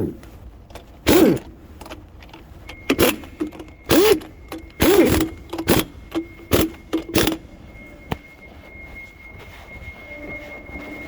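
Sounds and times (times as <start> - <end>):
impact wrench bursts: 0.7 - 7.4.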